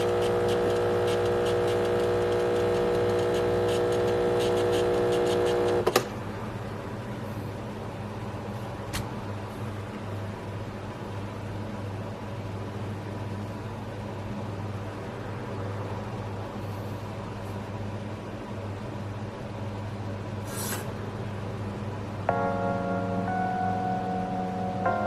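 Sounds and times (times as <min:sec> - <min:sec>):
espresso machine hiss: 0:00.0 - 0:05.9
espresso machine pump humming: 0:00.0 - 0:06.1.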